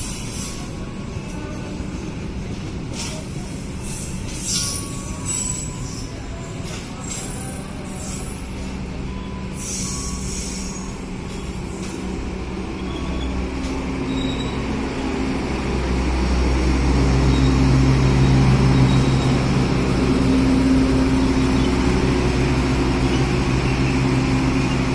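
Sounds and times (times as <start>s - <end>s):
train low hum: 0.0s - 24.9s
wheel-on-rail squeals: 2.9s - 14.8s, 17.3s - 19.5s.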